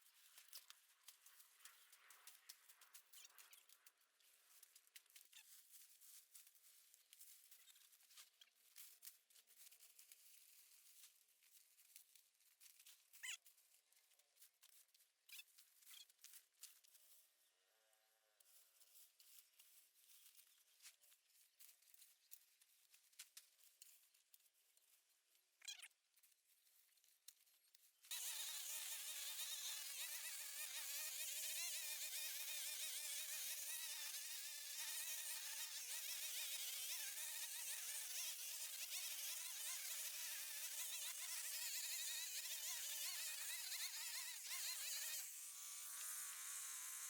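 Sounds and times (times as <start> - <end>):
small engine whining: 28.1 - 47.0.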